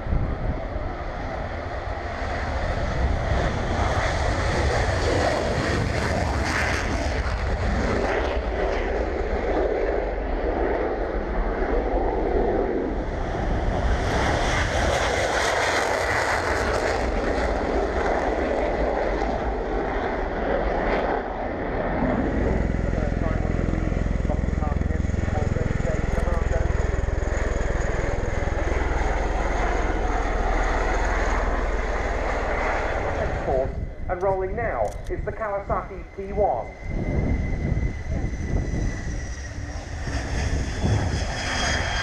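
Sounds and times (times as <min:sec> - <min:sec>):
jet fighters taking off: 0:00.0 - 0:42.0.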